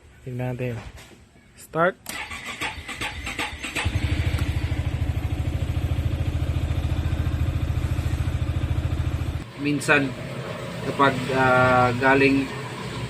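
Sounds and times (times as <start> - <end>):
electric starter cranking: 2.1 - 4.7
scooter engine idling: 3.1 - 9.4.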